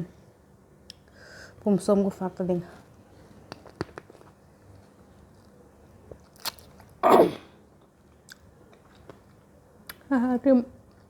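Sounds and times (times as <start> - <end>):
biting into fruit: 6.2 - 7.2.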